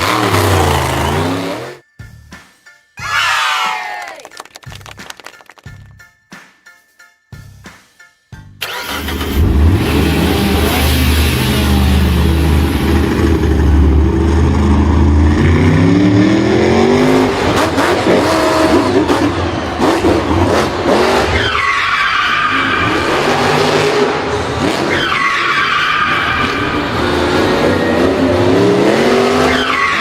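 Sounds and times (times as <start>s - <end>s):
car engine revving: 0.0s - 1.8s, 8.6s - 30.0s.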